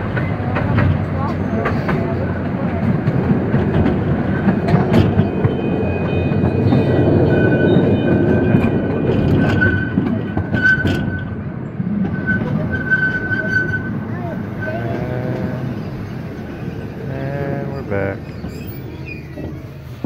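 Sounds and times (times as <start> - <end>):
wheels rumbling on rail: 0.0 - 20.0
high wheel squeal: 12.0 - 17.0, 18.2 - 20.0.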